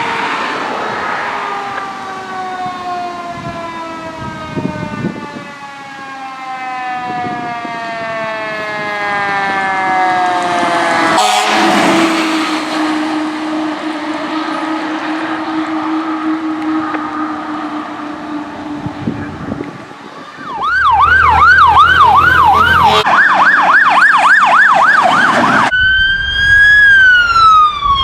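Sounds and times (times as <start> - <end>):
fire engine siren wailing: 0.0 - 28.0
low horn blast: 6.7 - 19.8, 20.8 - 23.2.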